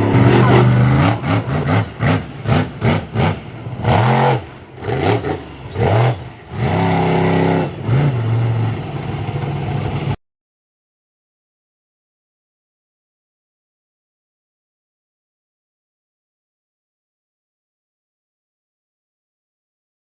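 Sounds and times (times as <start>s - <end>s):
monster truck engine revving: 0.0s - 10.2s.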